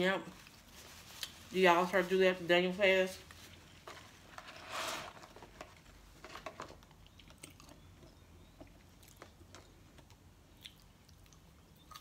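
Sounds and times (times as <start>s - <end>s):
person chewing food: 6.8s - 12.0s
wet mouth clicks: 10.6s - 12.0s.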